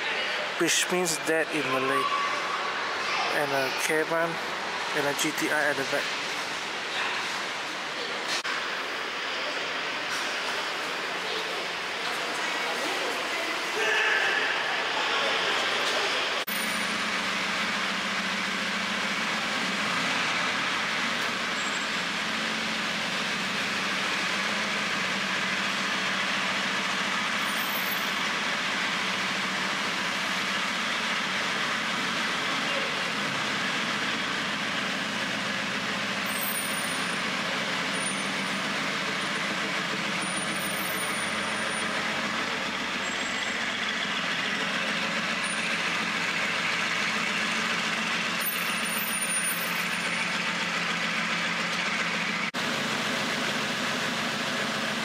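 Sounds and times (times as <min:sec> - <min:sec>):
traffic noise: 0:00.0 - 0:55.0
car engine idling: 0:16.4 - 0:55.0.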